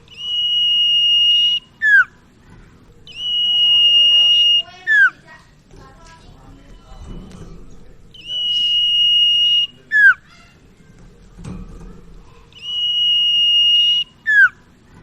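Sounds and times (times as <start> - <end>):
bird whistled song: 0.0 - 2.2, 3.0 - 5.2, 8.1 - 10.5, 12.5 - 14.7.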